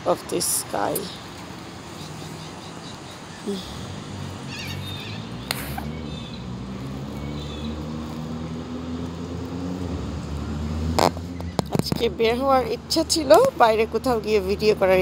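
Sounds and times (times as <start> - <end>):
bird chirps: 1.9 - 3.7, 4.4 - 8.0.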